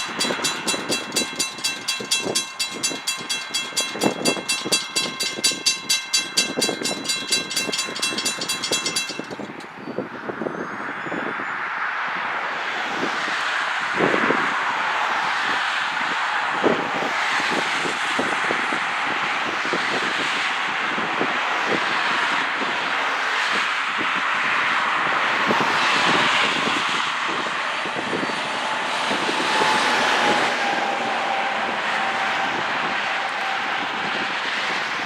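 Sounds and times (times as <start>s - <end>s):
steel wheels clicking on rails: 0.0s - 9.8s
freight train rushing past: 0.0s - 10.0s, 24.6s - 35.0s.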